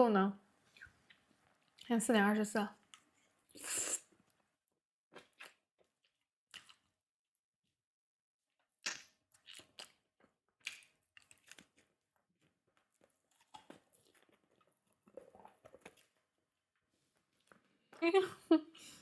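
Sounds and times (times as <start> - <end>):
chewing and crunching food: 0.7 - 2.0, 5.1 - 7.1, 8.5 - 18.0.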